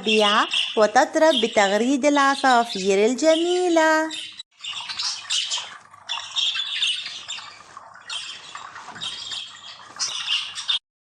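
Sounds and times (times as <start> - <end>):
flock of small birds chirping: 0.0 - 10.8.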